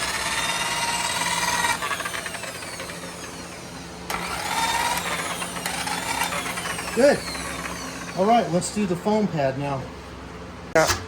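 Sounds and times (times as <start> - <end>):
electric polisher motor whining: 0.0 - 8.6.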